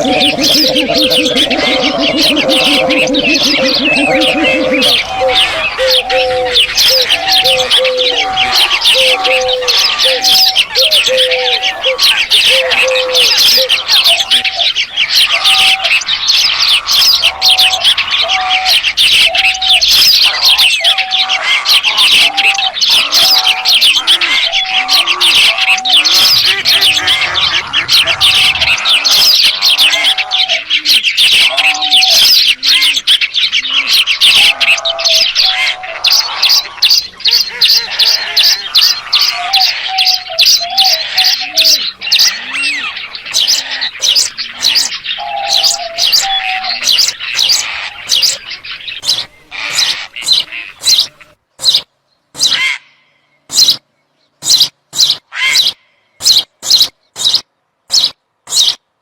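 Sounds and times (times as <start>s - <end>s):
low repeated notes: 0.0s - 6.8s
small birds chirping in chorus: 0.0s - 59.0s.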